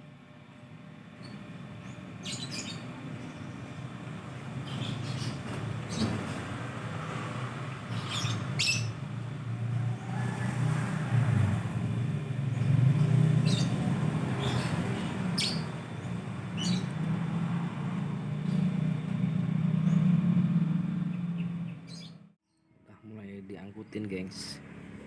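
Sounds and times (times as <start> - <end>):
low motor rumble: 0.0 - 22.4
lovebird chirps: 7.9 - 9.0, 13.4 - 17.4.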